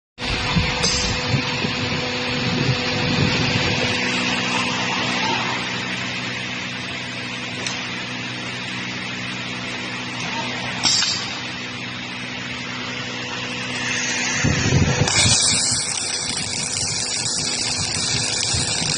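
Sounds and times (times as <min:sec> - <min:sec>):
machinery hum: 0:00.2 - 0:18.9
machinery hiss: 0:13.3 - 0:18.9.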